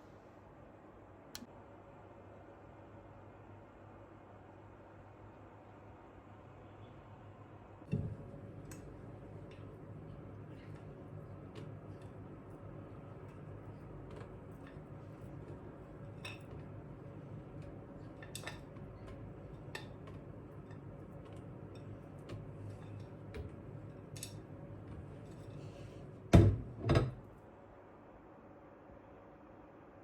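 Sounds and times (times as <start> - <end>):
low steady hum: 5.5 - 30.0
kitchenware clinking: 14.1 - 16.8, 17.5 - 24.5.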